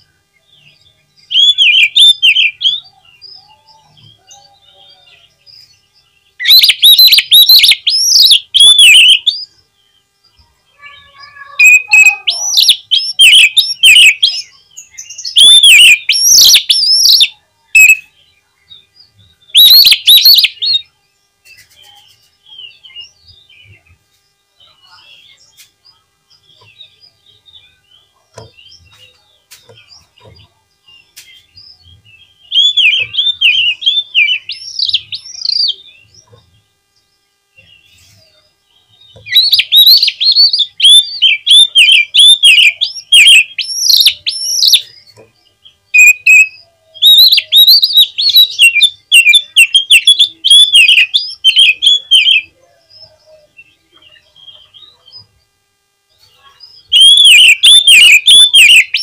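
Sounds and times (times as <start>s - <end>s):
bird singing whistled notes: 0.4s - 10.0s, 10.7s - 20.9s, 31.0s - 36.2s, 37.6s - 55.1s, 56.4s - 59.0s.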